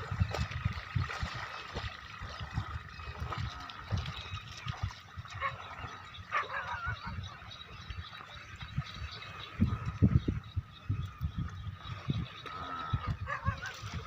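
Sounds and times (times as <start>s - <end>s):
honking bird calls: 5.3s - 14.0s.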